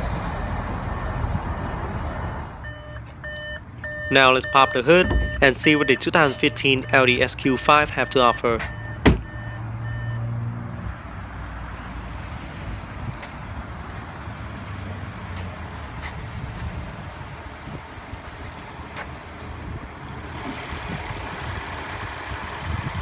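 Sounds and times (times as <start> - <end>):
car engine idling: 2.6 - 9.6, 15.0 - 23.0.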